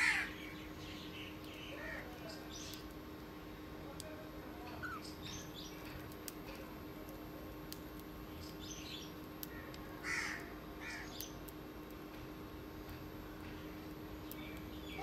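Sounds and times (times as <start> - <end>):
harsh bird calls: 0.0 - 2.9, 8.4 - 11.4
faint steady hum: 0.0 - 15.0.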